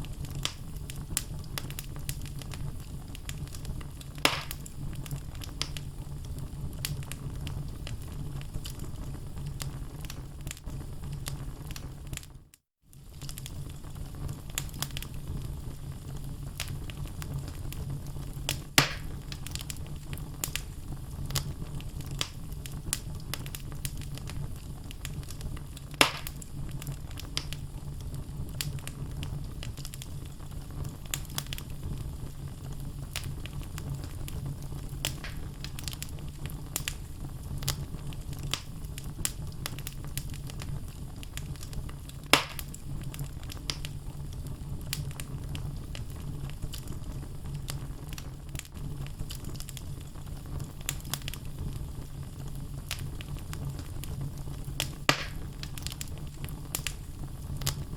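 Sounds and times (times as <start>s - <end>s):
fire crackles: 0.0s - 57.9s
fire rumbling: 0.0s - 57.9s
loud wood pops: 4.2s - 4.6s, 18.8s - 19.1s, 26.0s - 26.4s, 35.1s - 35.5s, 42.4s - 42.7s, 55.1s - 55.5s.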